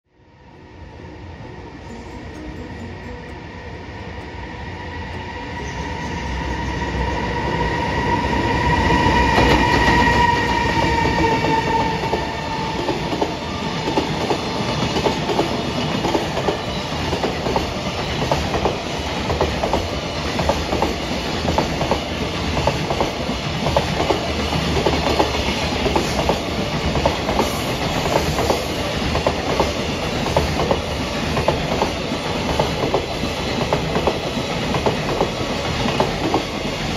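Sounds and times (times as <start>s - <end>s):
train passing with a whine: 0.1s - 36.9s
clickety-clack of train wheels: 9.0s - 36.9s.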